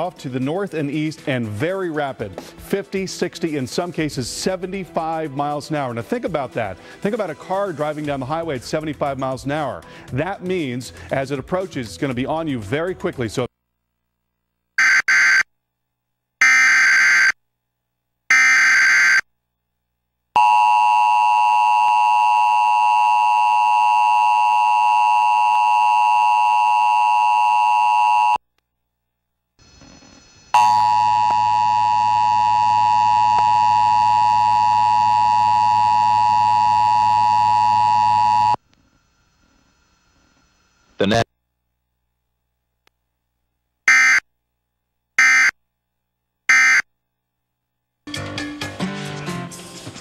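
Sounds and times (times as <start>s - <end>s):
steady tone with low hum: 28.6s - 43.8s.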